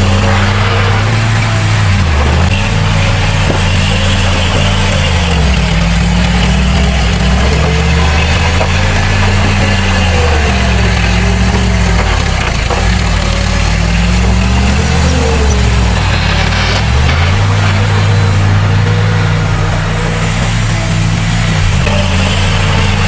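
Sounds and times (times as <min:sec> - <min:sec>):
heavy diesel engine running: 0:00.0 - 0:23.0.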